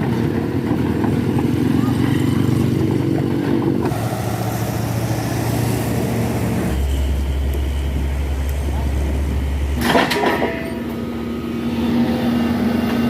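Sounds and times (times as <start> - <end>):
vehicle engines running: 0.0 - 13.0
deep engine drone: 2.7 - 13.0.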